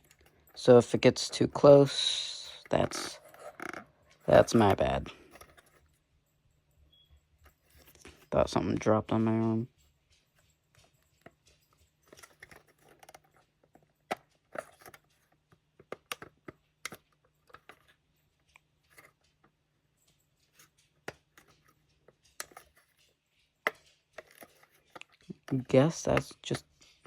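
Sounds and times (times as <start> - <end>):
plastic model parts clicking: 12.1 - 17.9, 20.6 - 23.0.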